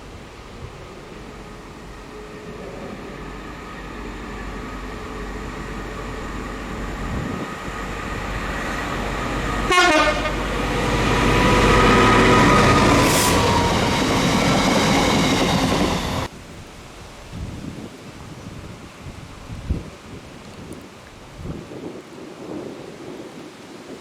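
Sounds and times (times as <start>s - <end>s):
diesel train passing: 0.0s - 16.3s
train horn blast: 9.6s - 14.1s.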